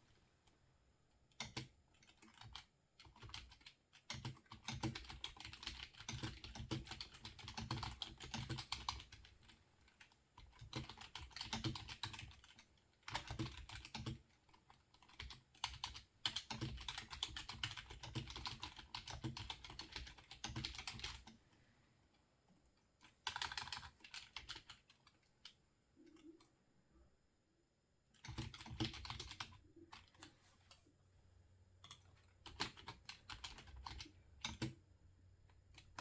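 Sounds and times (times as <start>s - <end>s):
typing on computer keyboard: 1.3s - 21.4s, 23.0s - 26.5s, 28.2s - 30.3s, 31.8s - 34.9s.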